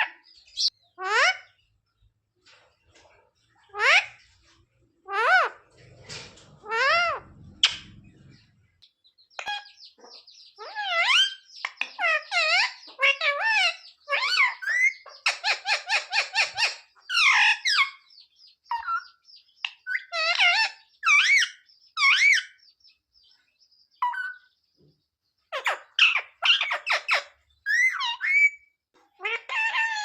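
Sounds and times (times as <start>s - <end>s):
parrot calling: 0.0s - 1.6s, 3.6s - 4.2s, 5.0s - 5.7s, 6.6s - 8.4s, 9.4s - 18.0s, 18.7s - 22.6s, 25.5s - 30.0s.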